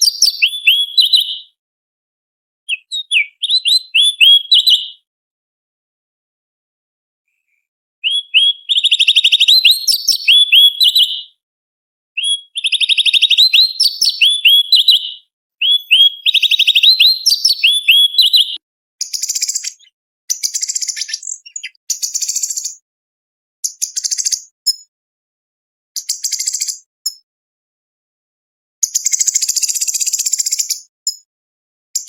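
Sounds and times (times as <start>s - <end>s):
bird singing trilled phrases: 0.0s - 1.6s, 2.7s - 5.0s, 8.0s - 11.4s, 12.2s - 22.8s, 23.6s - 24.9s, 26.0s - 27.2s
buzzy bird chattering: 2.7s - 4.6s, 19.2s - 22.7s.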